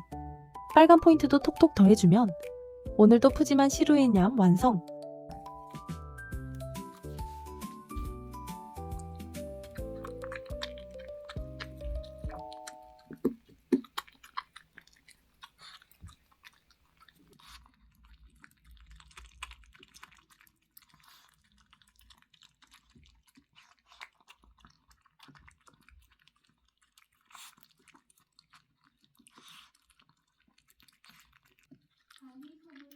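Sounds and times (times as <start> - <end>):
dog chewing and crunching: 5.3 - 32.9.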